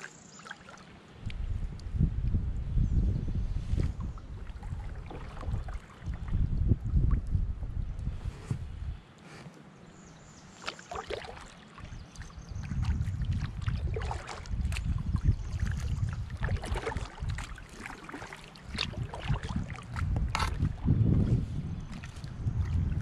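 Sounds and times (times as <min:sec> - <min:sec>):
paddle splashing in water: 0:00.0 - 0:01.0, 0:03.7 - 0:06.4, 0:10.5 - 0:21.0, 0:21.8 - 0:23.0
wind on microphone: 0:01.2 - 0:09.4, 0:11.0 - 0:23.0.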